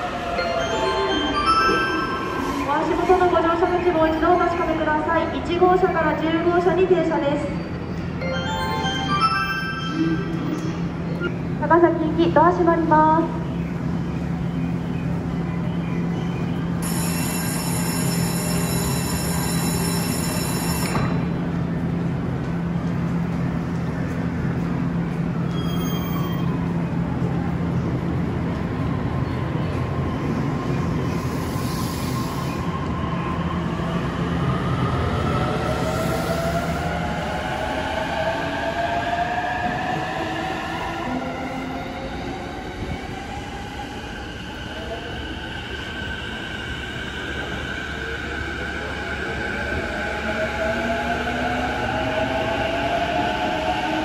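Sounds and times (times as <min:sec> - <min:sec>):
electric train hum: 0:00.0 - 0:54.0
brief high squeal: 0:25.5 - 0:26.6.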